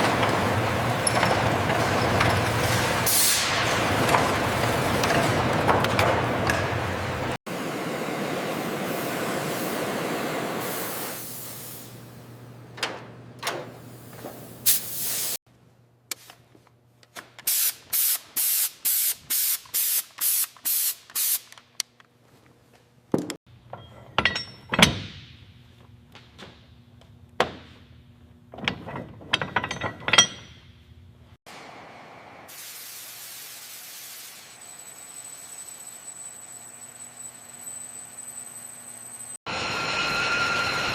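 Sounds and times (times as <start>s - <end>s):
hissing spray bursts: 7.6s - 12.0s, 13.8s - 15.4s, 17.5s - 21.5s, 32.5s - 34.5s.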